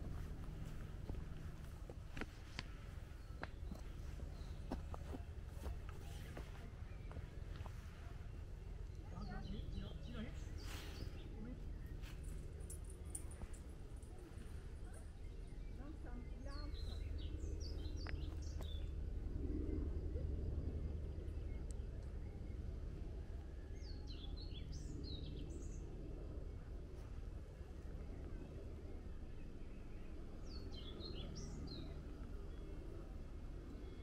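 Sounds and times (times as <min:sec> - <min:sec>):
low background rumble: 0:00.0 - 0:34.0
songbird phrase: 0:03.2 - 0:12.3, 0:13.2 - 0:18.9, 0:28.1 - 0:34.0.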